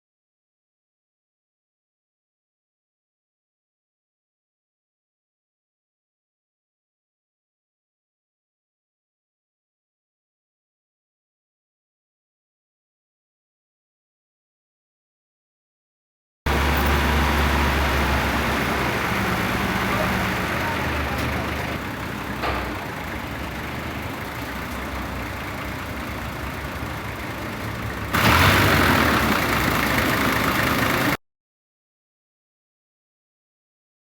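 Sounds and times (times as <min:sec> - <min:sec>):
engine idling: 0:16.5 - 0:31.2
machinery running: 0:16.5 - 0:31.2.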